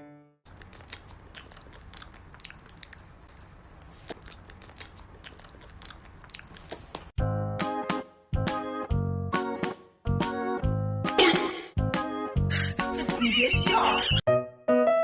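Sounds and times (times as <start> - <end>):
music: 0.0 - 0.4, 7.2 - 15.0
crunchy chewing: 0.5 - 7.2.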